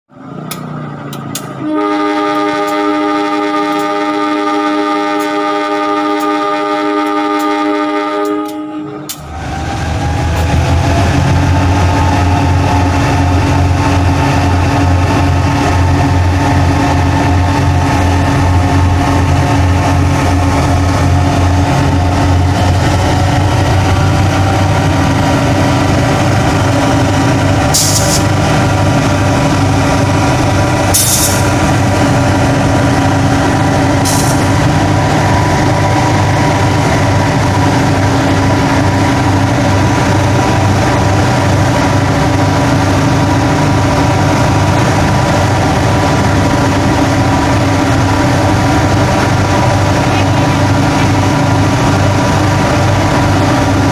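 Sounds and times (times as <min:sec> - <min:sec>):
locomotive diesel engine running: 0:00.1 - 0:07.4, 0:08.2 - 0:53.9
air hissing: 0:27.7 - 0:28.3, 0:30.9 - 0:31.6, 0:34.0 - 0:34.6.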